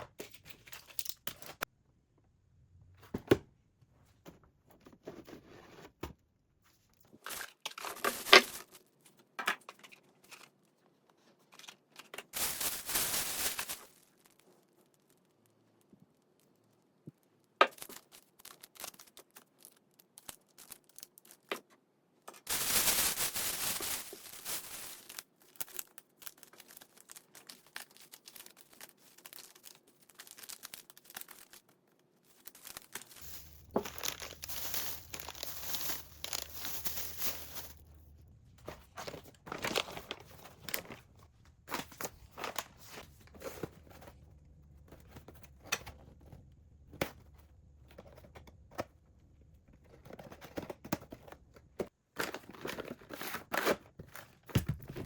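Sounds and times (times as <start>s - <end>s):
crinkling and tearing: 11.6s - 16.8s, 17.7s - 21.7s, 22.4s - 37.9s.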